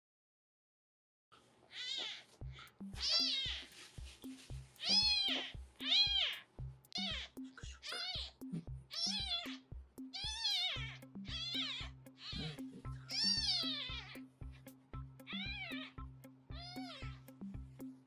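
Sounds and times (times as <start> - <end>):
kitten mewing: 1.8 - 3.8, 4.8 - 9.6, 10.2 - 14.2
background music with beat: 2.4 - 18.0.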